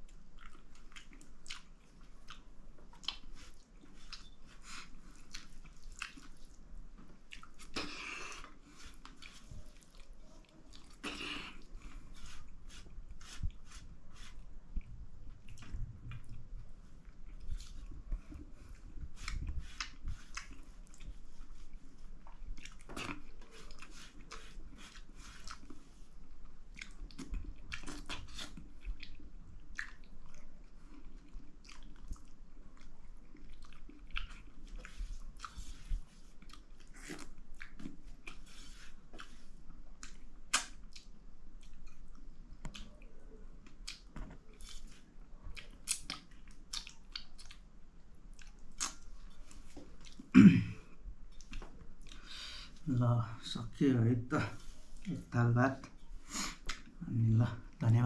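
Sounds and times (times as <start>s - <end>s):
person chewing food: 0.0s - 52.9s
wet mouth clicks: 40.0s - 42.0s, 45.6s - 47.6s, 48.4s - 49.0s.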